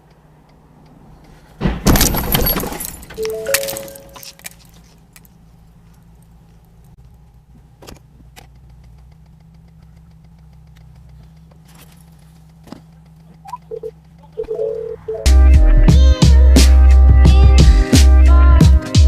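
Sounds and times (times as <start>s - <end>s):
faint clicks: 0.0s - 1.4s, 5.1s - 14.4s
road noise: 0.0s - 18.8s
car engine hum: 0.0s - 19.0s
car collision clatter: 1.3s - 5.4s.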